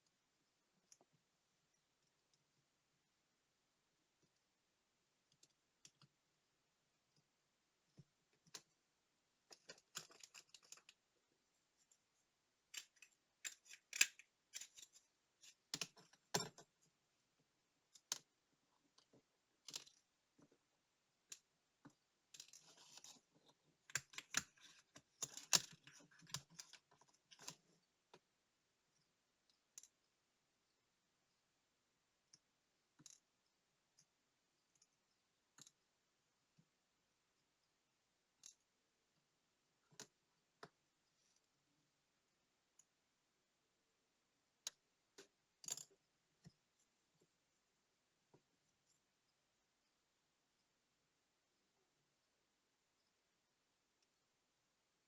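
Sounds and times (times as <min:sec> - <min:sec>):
small hand tools clicking and tapping: 0:12.7 - 0:16.6.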